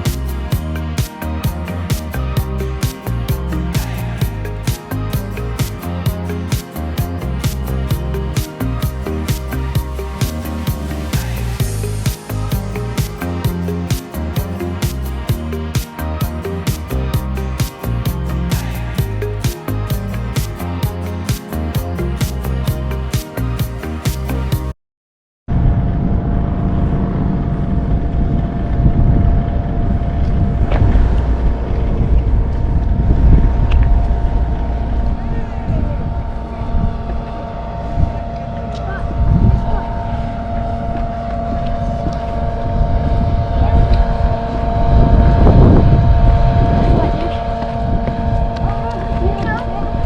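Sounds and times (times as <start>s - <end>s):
background music: 0.0s - 24.8s
wind rushing over microphone: 39.0s - 50.0s.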